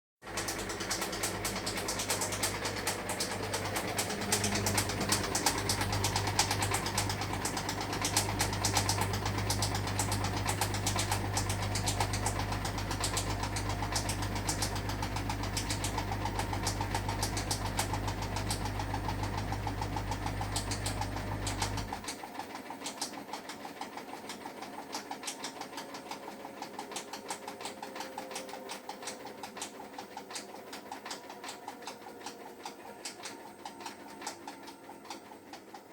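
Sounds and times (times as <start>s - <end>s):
rapid knocking and ticking: 0.2s - 35.9s
washing machine drum humming: 0.2s - 35.9s
drum winding down whine: 1.1s - 13.5s.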